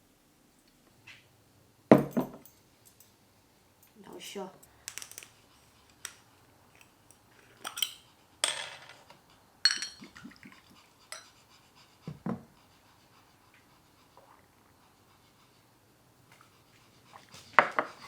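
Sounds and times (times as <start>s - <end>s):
dishes and utensils clinking: 6.8s - 10.2s, 11.1s - 11.3s.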